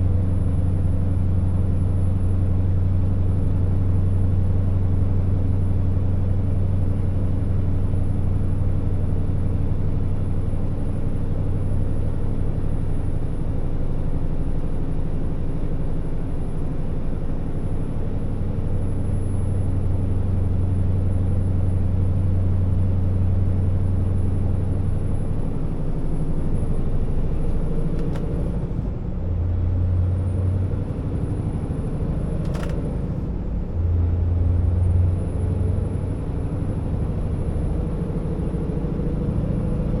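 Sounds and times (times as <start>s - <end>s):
truck diesel engine droning: 15.4s - 40.0s
click: 27.5s - 28.4s, 32.4s - 32.9s.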